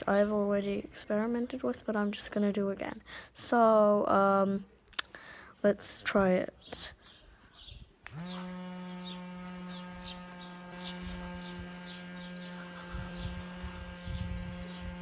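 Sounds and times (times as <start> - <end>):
small electric motor humming: 8.0 - 15.0.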